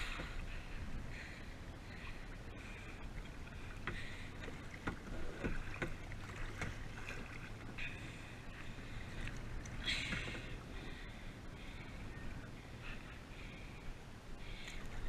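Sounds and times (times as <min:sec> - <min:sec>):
steady low rumble: 0:00.0 - 0:15.0
paddle splashing in water: 0:02.0 - 0:11.0.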